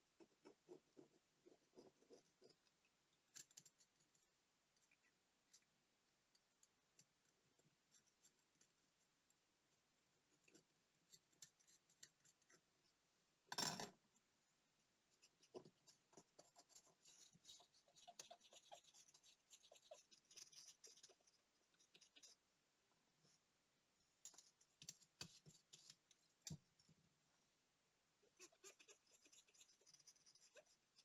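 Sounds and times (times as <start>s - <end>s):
small tools clicking and scratching: 0.5s - 4.2s.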